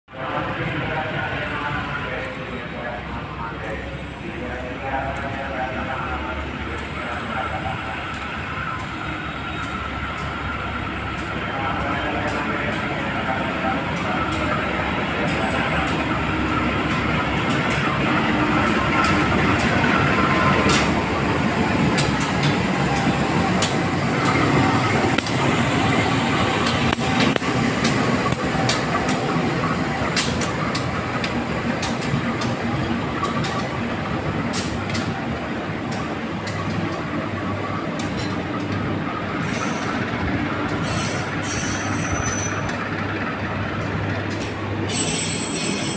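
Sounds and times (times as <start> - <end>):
train rumbling on rails: 0.1 - 45.9
wheels clicking over rail joints: 26.6 - 33.8, 34.4 - 35.2, 37.6 - 45.1.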